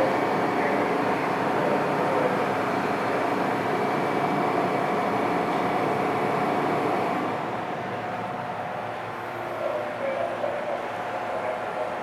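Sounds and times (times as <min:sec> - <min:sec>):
train wheel and rail noise: 0:00.0 - 0:12.0.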